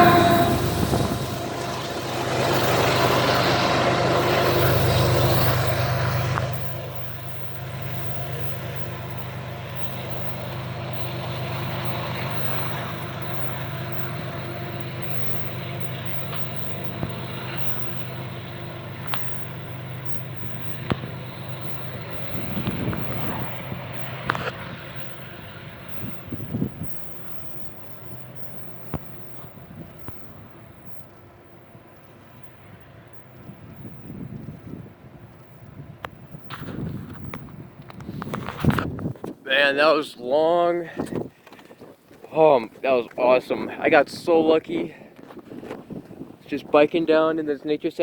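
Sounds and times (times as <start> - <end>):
low hum: 0.0 - 37.8
train rolling past: 0.0 - 40.2.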